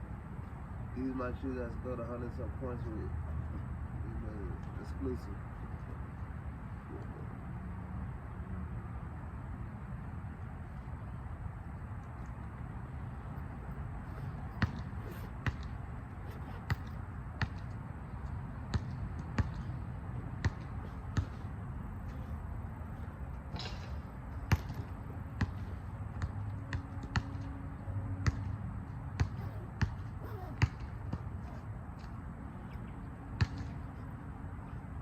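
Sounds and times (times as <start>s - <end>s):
low background noise: 0.0s - 35.0s
basketball bouncing on hard court: 14.5s - 17.8s, 18.7s - 19.7s, 20.4s - 21.5s, 24.4s - 27.5s, 28.2s - 28.5s, 29.1s - 31.6s.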